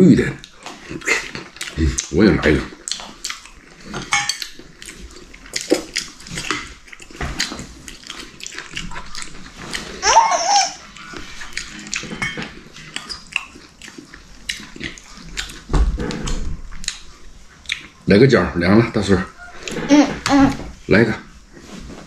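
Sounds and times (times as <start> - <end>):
chewing and slurping: 0.4 - 10.0, 10.8 - 18.1.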